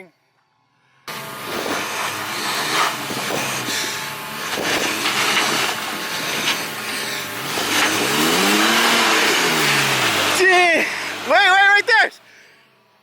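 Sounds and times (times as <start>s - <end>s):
pickup truck engine revving: 1.1s - 11.9s
tyres scrabbling on loose ground: 1.4s - 11.6s.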